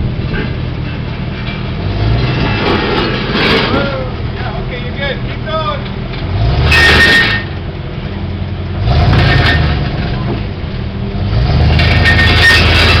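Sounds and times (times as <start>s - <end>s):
truck engine revving: 6.2s - 8.0s, 8.6s - 13.0s.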